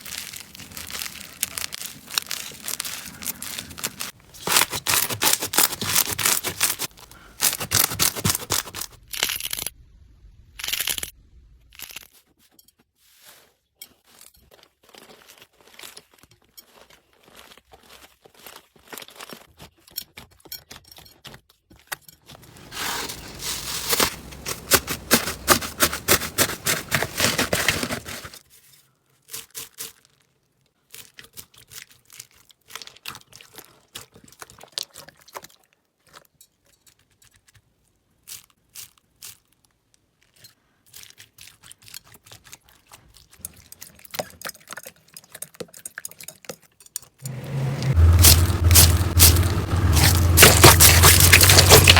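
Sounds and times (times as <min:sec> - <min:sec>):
slime crackling and popping: 0:00.0 - 0:09.7, 0:47.9 - 0:51.9.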